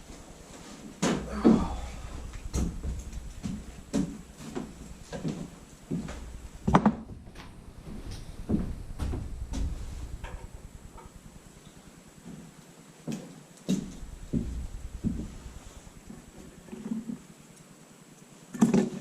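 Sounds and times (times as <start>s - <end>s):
low rumble: 0.0s - 12.2s, 13.8s - 16.8s
knocks and clunks: 1.0s - 11.4s.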